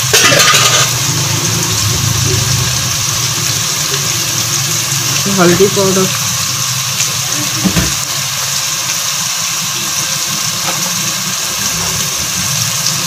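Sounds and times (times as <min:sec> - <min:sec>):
masala sizzling in oil: 0:00.0 - 0:13.0
low hum: 0:00.6 - 0:07.4.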